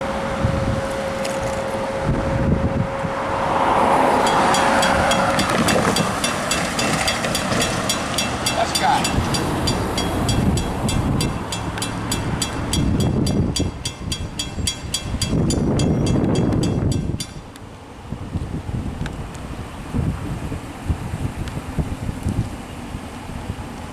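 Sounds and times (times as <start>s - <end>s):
wind rumble on microphone: 0.0s - 23.9s
railroad crossing bell ringing: 4.0s - 17.6s.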